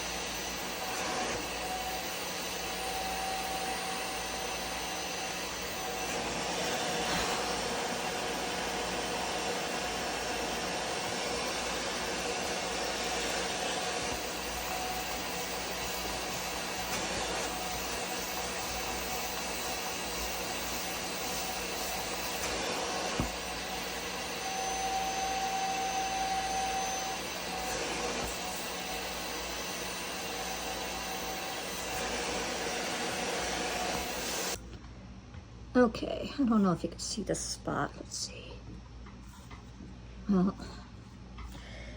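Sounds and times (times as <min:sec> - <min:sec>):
spot cleaner suction motor hum: 0:00.0 - 0:34.6.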